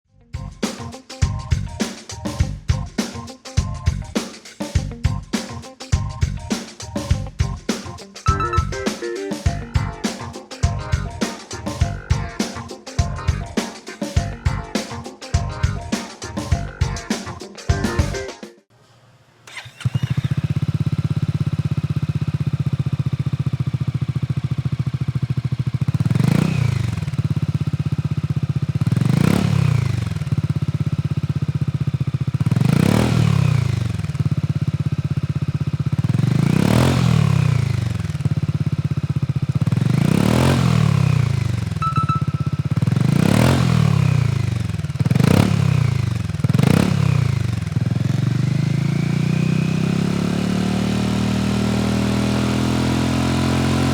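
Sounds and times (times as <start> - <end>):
scooter engine idling and revving: 19.4 - 53.9.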